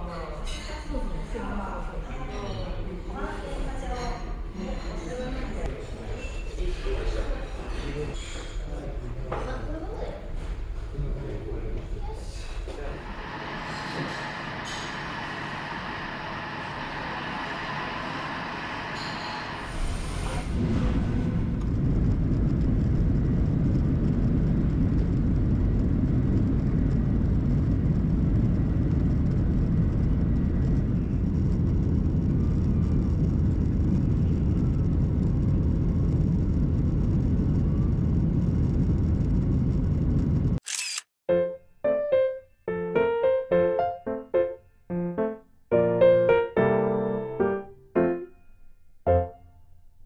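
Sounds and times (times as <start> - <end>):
deep steady cabin rumble: 20.0 - 40.6.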